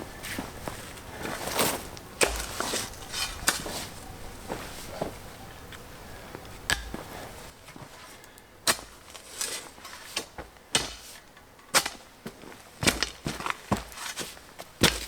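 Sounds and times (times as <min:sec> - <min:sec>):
hand tools striking stony ground: 0:01.2 - 0:04.0, 0:06.6 - 0:07.2, 0:08.6 - 0:14.2, 0:14.8 - 0:15.0.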